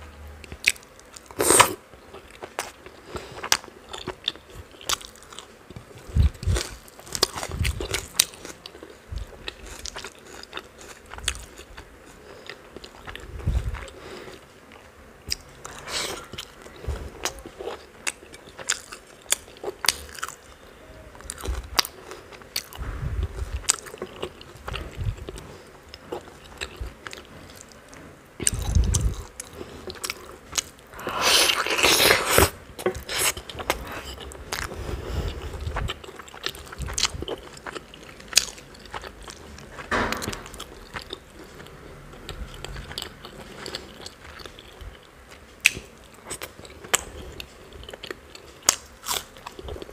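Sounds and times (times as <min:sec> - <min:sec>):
chewing with wet mouth clicks: 0:31.6 - 0:49.9.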